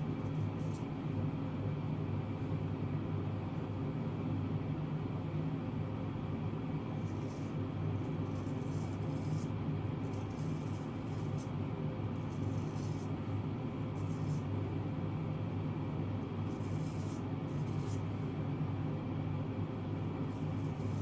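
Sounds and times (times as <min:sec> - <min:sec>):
steady low hum: 0:00.0 - 0:21.0
razor scraping stubble: 0:07.0 - 0:11.5, 0:12.2 - 0:13.2, 0:16.5 - 0:18.1, 0:20.4 - 0:21.0.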